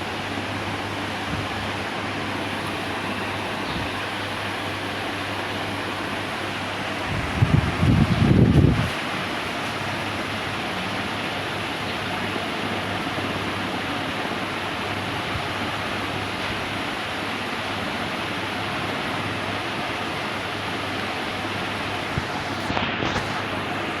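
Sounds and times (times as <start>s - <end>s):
faint low motor hum: 0.0s - 14.0s
ceiling fan air rush: 0.0s - 24.0s.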